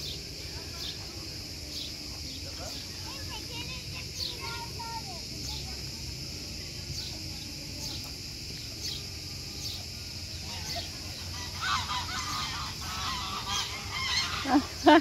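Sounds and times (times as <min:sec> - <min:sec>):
geese honking: 0:10.4 - 0:15.0.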